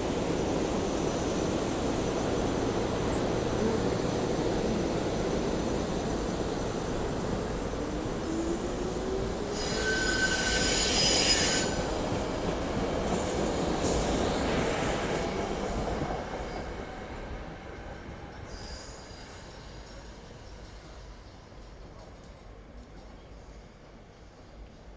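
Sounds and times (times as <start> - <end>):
steel wheels squealing: 9.4 - 11.9.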